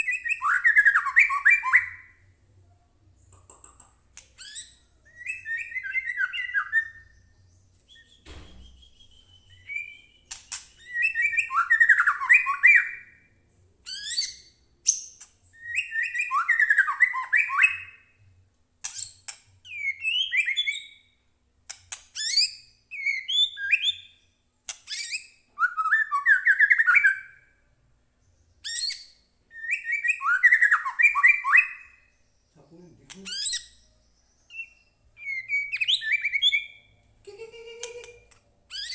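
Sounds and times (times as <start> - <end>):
bird singing: 0.0 - 2.3, 4.4 - 18.2, 19.7 - 21.2, 22.2 - 38.9.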